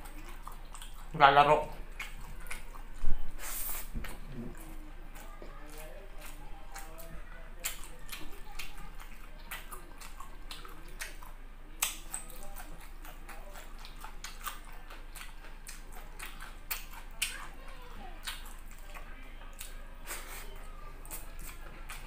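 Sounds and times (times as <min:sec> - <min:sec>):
person chewing wet clicks: 0:00.0 - 0:22.0.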